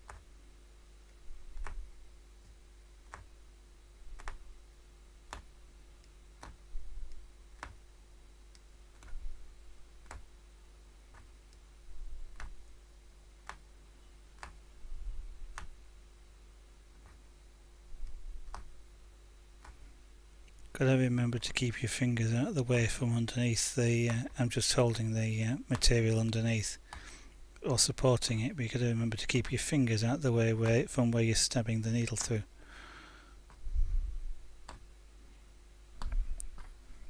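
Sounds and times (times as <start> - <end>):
punch needle clicking through fabric: 0.0 - 0.3, 1.3 - 1.9, 2.5 - 3.3, 4.1 - 4.5, 5.3 - 7.8, 8.5 - 9.3, 10.0 - 10.3, 12.3 - 12.6, 13.4 - 13.7, 14.4 - 14.6, 15.5 - 15.8, 18.0 - 18.8, 19.6 - 19.8.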